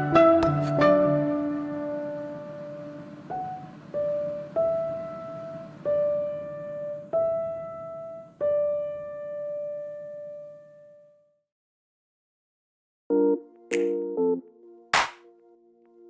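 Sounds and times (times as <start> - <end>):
slow piano melody: 0.0 - 11.2, 13.1 - 16.0.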